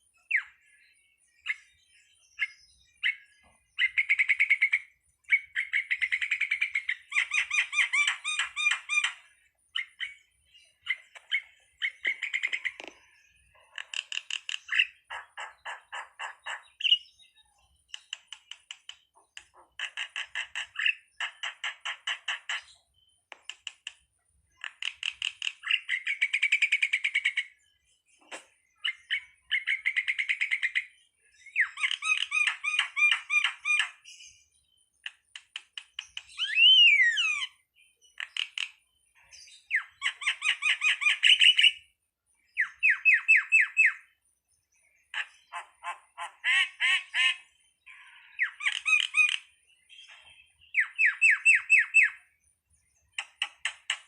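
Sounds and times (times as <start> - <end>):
bird whistle: 36.4 - 37.6, 48.4 - 52.2.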